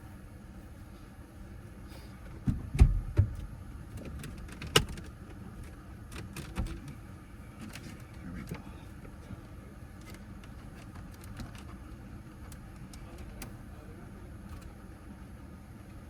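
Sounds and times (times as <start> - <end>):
heavy thumps inside car: 2.4 - 3.5.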